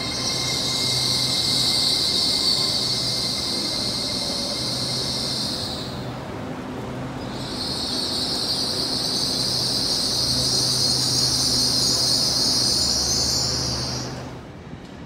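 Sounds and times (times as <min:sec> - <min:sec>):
train low hum: 0:00.0 - 0:15.0.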